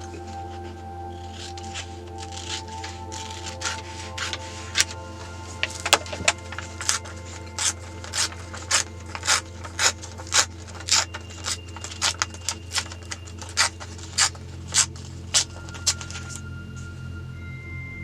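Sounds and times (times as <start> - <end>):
soft background music: 0.0 - 18.0
pencil scratching on paper: 5.7 - 16.4.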